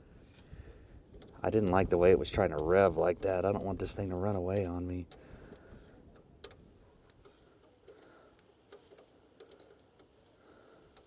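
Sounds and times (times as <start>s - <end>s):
faint clicks: 5.0s - 11.0s.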